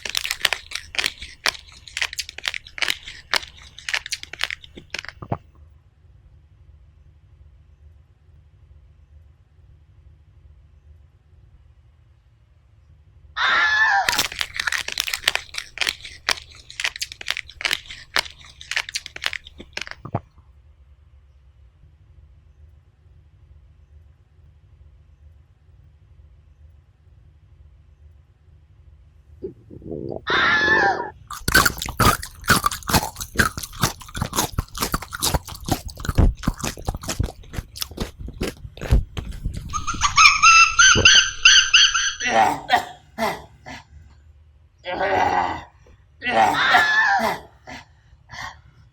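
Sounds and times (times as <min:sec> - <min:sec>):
crunching of brittle food: 0:00.0 - 0:05.4, 0:14.0 - 0:20.2, 0:31.2 - 0:42.8
wavering squeal-like cry: 0:30.3 - 0:31.1, 0:39.7 - 0:42.6.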